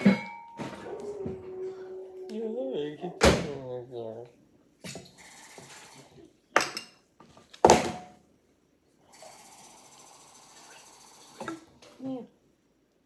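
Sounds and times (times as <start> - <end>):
kitchenware clinking: 0.0 - 1.8, 6.6 - 7.0.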